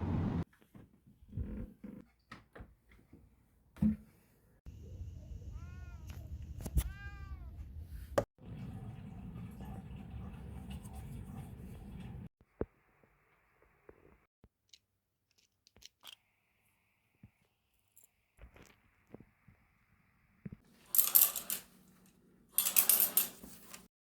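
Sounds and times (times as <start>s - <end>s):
cat meowing: 5.5s - 6.2s, 6.8s - 7.6s.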